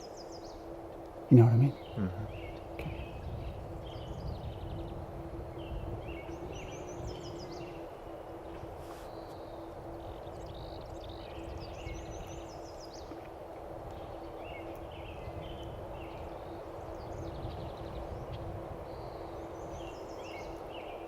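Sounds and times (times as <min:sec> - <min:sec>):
faint low hum: 0:00.0 - 0:21.0
outdoor background noise: 0:00.0 - 0:21.0
songbirds chirping and trilling: 0:00.0 - 0:21.0.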